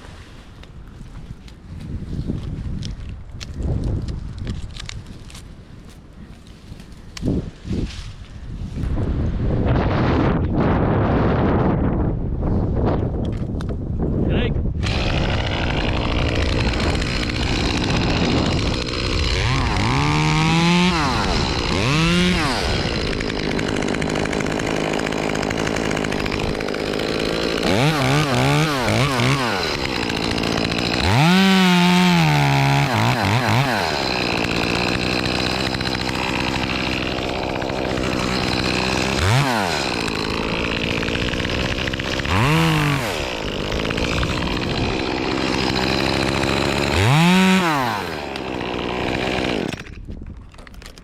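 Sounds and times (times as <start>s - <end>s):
chainsaw revving while cutting wood: 14.8s - 50.0s.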